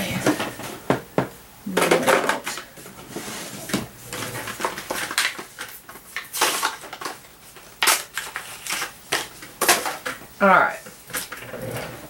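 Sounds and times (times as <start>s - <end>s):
tools and paper clattering: 1.9s - 10.2s.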